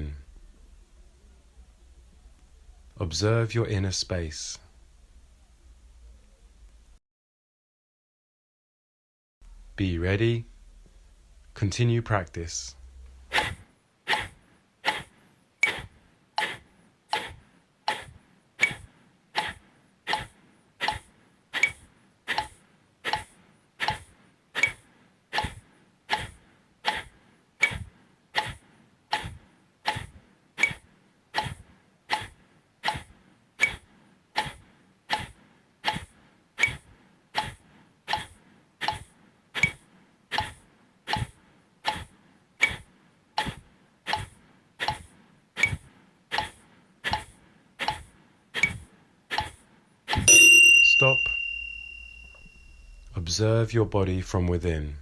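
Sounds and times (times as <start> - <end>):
forceful nasal exhalations: 13.3 - 50.2.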